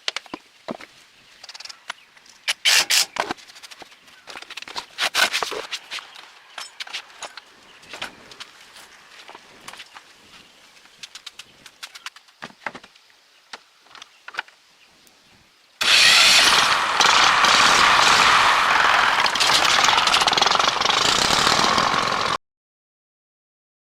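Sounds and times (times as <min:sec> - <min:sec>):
truck engine running loudly: 0:15.8 - 0:22.4.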